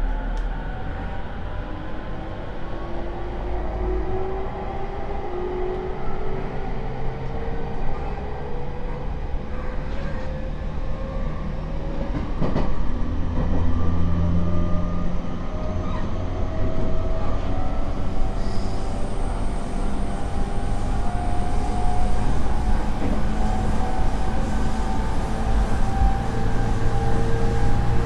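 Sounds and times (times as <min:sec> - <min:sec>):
wheels rumbling on rail: 0:00.0 - 0:28.0
rail clack: 0:12.0 - 0:13.7.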